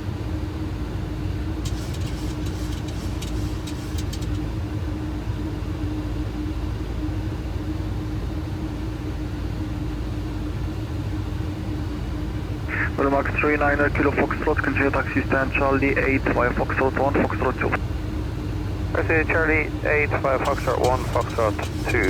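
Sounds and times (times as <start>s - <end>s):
airflow and engine rush: 0.7s - 7.0s, 11.4s - 22.0s
quick run of clicks: 1.6s - 4.4s.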